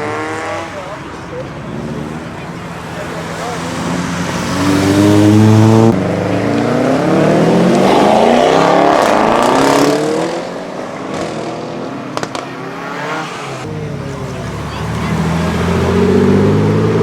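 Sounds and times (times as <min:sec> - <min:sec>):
car accelerating past: 0:01.6 - 0:13.7.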